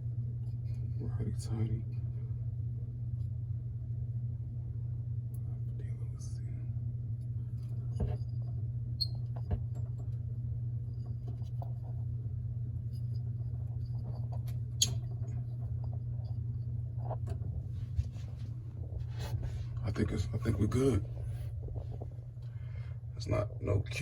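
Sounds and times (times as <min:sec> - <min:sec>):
steady low hum: 0:00.0 - 0:24.0
clicks and squeaks of pipe fittings: 0:09.0 - 0:10.0, 0:14.2 - 0:15.4.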